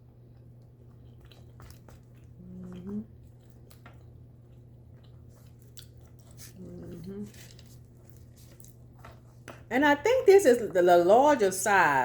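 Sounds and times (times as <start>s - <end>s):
wet chewing with clicks: 0.0s - 9.7s.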